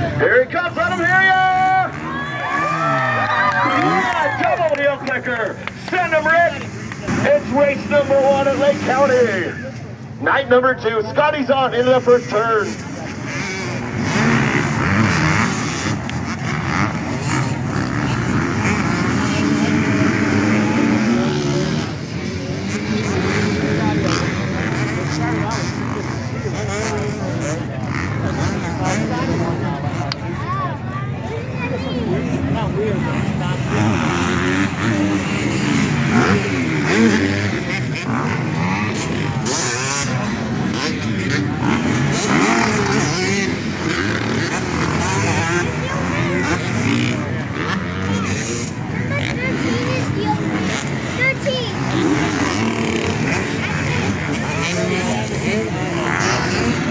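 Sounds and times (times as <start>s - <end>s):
dirt bike engines revving: 0.0s - 56.9s.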